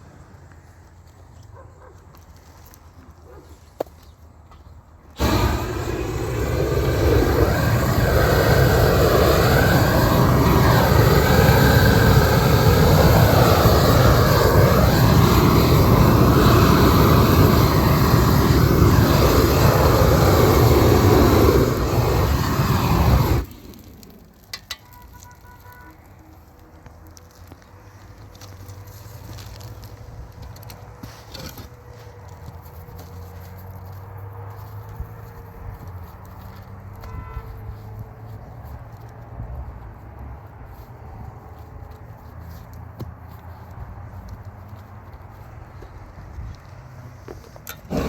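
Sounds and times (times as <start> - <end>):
gas torch burner running: 5.2 - 24.6, 47.6 - 48.0.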